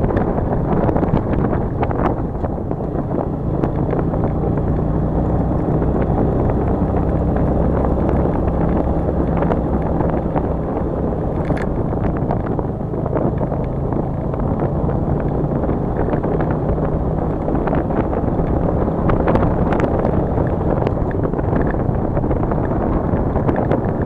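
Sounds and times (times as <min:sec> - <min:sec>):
vehicle engine running: 0:00.0 - 0:24.0
wind buffeting microphone: 0:00.0 - 0:24.0.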